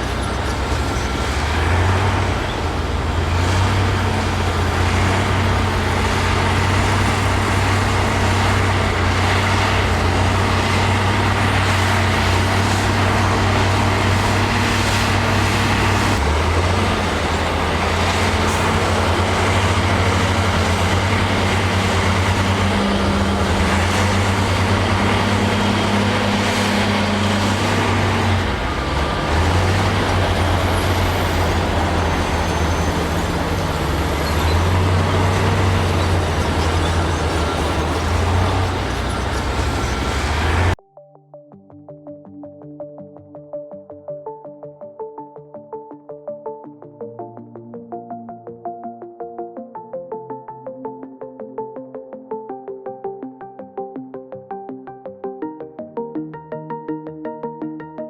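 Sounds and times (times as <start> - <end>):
heavy diesel engine working: 0.0 - 40.8.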